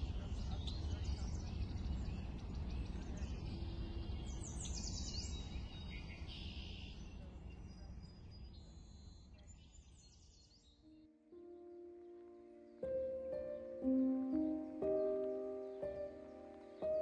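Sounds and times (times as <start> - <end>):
birds singing: 0.0 - 17.0.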